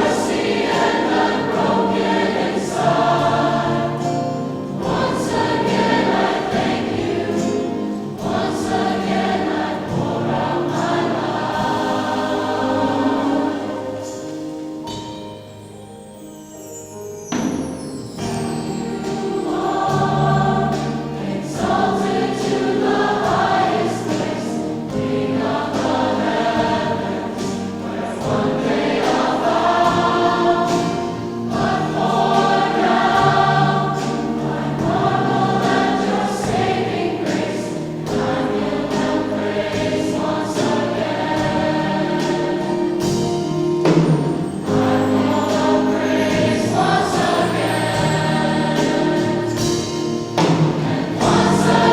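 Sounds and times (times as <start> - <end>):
choir singing: 0.0 - 15.1, 17.5 - 51.9
instrumental accompaniment: 0.0 - 51.9.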